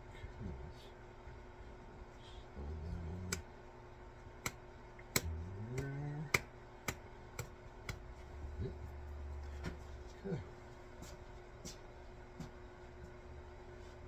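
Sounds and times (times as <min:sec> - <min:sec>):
low hum rising in pitch: 0:08.2 - 0:10.0.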